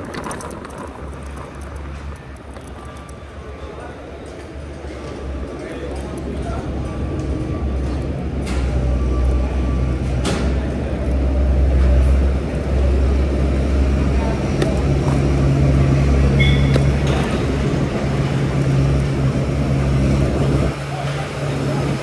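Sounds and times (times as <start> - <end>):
motor traffic: 0.0 - 22.0
wind and road noise: 0.0 - 22.0
brief high tone: 16.4 - 16.8.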